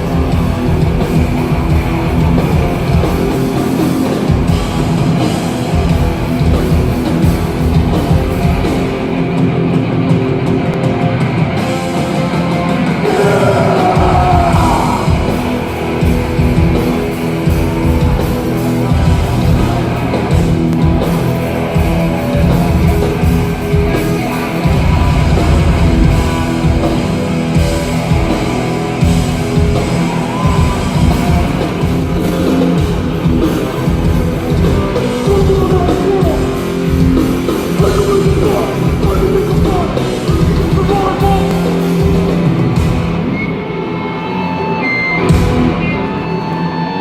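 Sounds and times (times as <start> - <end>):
bass guitar: 0.0 - 47.0
distorted guitar: 0.0 - 47.0
drums: 0.0 - 47.0
person yelling vocals: 13.0 - 15.5.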